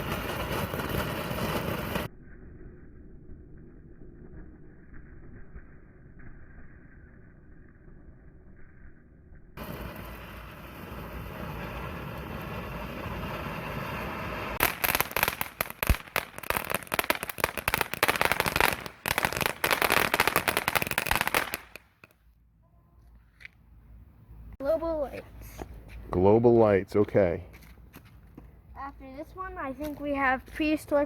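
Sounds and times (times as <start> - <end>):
firework hissing: 0.0 - 2.8, 9.6 - 22.1
firework crackling and popping: 0.0 - 22.2.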